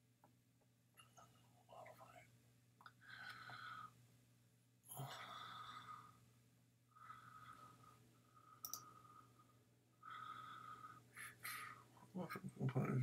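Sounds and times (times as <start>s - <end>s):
faint breathy whispering: 1.0s - 4.0s, 4.9s - 6.2s, 6.9s - 13.0s
computer mouse click: 8.6s - 8.9s.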